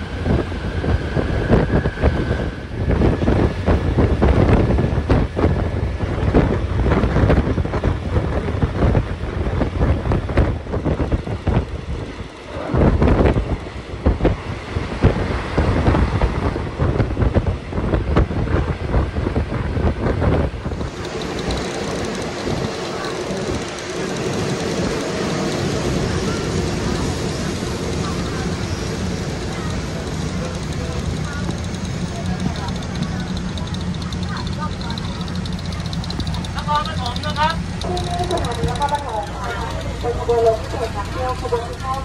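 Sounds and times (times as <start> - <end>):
train rumble: 0.0 - 42.0
wind buffeting microphone: 0.0 - 42.0
train wheels clattering: 20.7 - 42.0.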